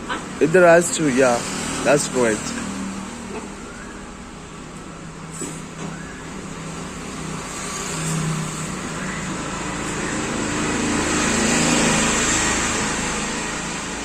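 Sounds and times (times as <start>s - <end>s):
vehicle driving past: 5.1s - 14.0s.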